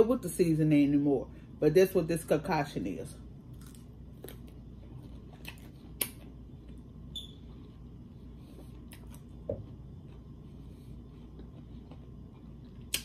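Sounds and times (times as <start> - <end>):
cucumber crunching: 3.5 - 6.8, 11.1 - 13.0
wet mouth clicks: 12.8 - 13.0.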